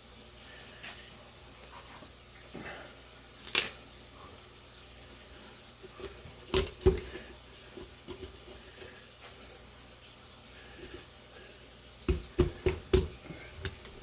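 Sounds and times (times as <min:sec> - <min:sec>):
poultry shears cracking bone: 0:03.4 - 0:03.8.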